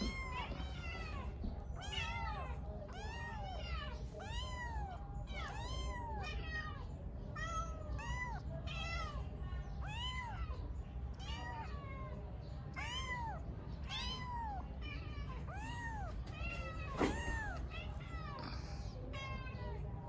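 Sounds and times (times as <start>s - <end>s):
kitten meowing: 0.0s - 1.0s, 1.8s - 6.3s, 7.4s - 8.4s, 9.8s - 10.4s, 11.1s - 11.7s, 12.7s - 14.6s, 15.5s - 17.7s.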